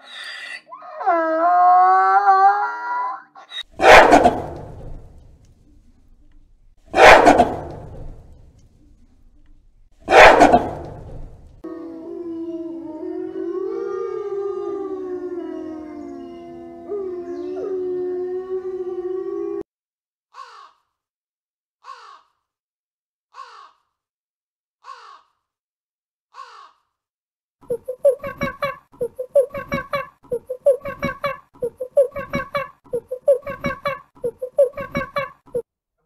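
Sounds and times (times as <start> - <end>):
wolves howling: 0.6 - 4.6, 11.6 - 19.7
crow cawing: 20.3 - 20.9, 21.8 - 22.4, 23.3 - 23.9, 24.8 - 25.4, 26.3 - 26.9
monkeys chattering: 27.7 - 35.6.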